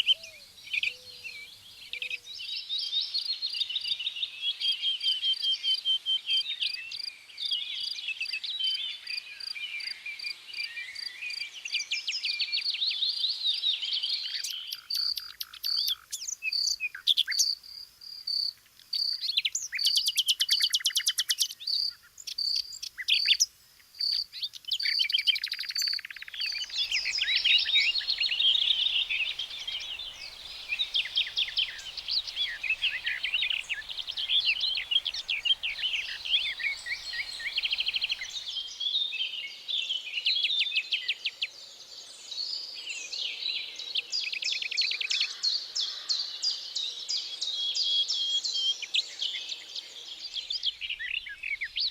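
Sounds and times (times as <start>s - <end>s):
songbirds chorus: 13.2s - 40.3s, 41.2s - 51.9s.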